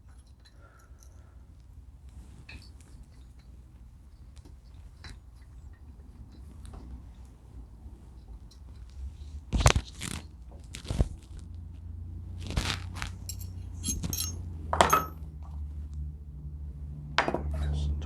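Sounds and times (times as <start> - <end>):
metal tools clinking and knocking: 13.2 - 15.2.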